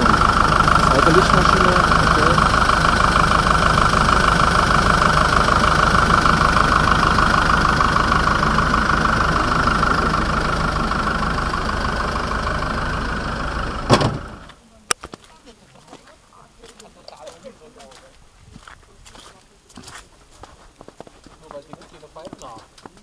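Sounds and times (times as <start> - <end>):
car engine idling: 0.0 - 14.6
car bonnet slamming shut: 13.8 - 14.5.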